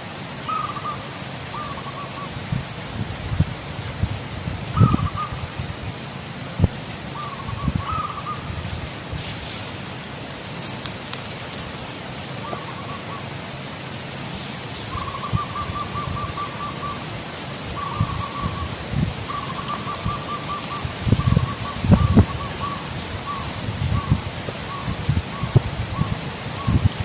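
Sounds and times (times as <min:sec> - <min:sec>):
dove cooing: 0:00.5 - 0:02.4, 0:04.8 - 0:05.4, 0:07.2 - 0:08.5, 0:12.4 - 0:13.3, 0:14.9 - 0:17.1, 0:17.7 - 0:27.0.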